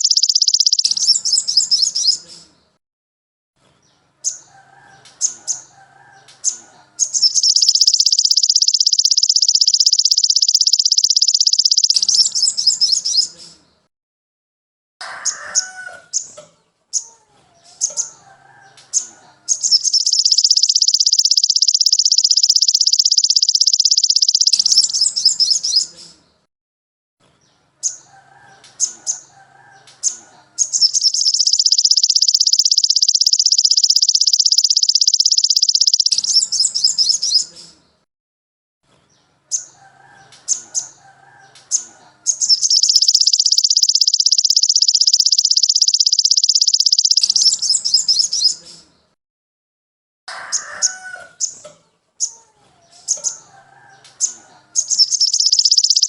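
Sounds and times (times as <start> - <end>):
songbird trilling: 0.0 - 2.5, 6.4 - 13.4, 19.0 - 25.9, 28.8 - 37.7, 39.5 - 48.6, 53.1 - 56.0
sharp bird chirps: 0.0 - 2.6, 4.2 - 13.6, 18.9 - 26.2, 27.8 - 37.8, 39.5 - 49.0, 51.4 - 52.3, 53.0 - 56.0.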